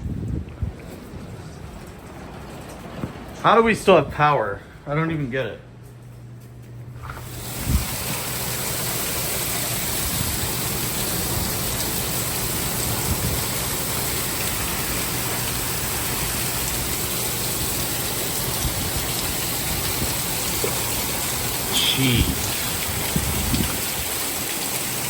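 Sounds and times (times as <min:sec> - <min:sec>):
heavy rain pouring: 0:07.2 - 0:25.0.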